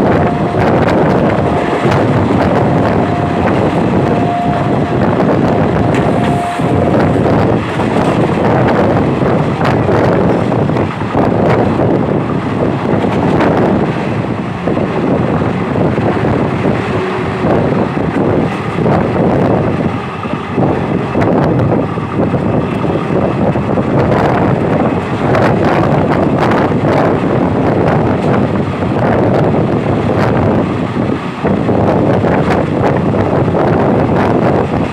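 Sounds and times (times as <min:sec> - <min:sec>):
train wheels rumbling on track: 0:00.0 - 0:34.9
wind buffeting microphone: 0:00.0 - 0:34.9.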